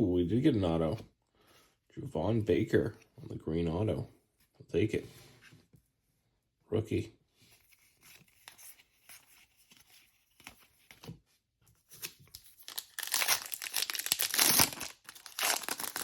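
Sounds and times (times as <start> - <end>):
wrapper tearing and crinkling: 12.4 - 16.0.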